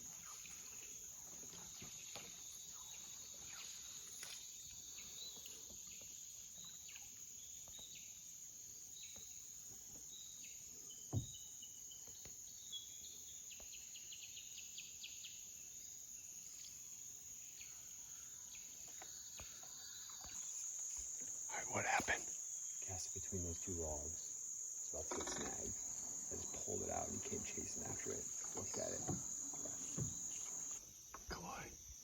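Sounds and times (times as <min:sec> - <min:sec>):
insects droning: 0:00.0 - 0:32.0
bird chirps: 0:24.9 - 0:31.6.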